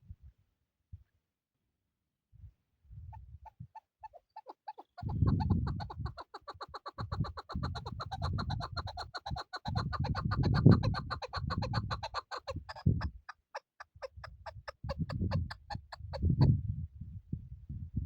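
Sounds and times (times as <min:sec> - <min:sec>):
partridge clucking calls: 0:03.4 - 0:16.5.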